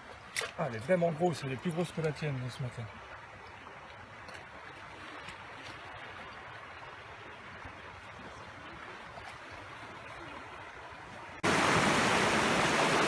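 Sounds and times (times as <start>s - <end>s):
stream rushing: 9.7s - 13.0s.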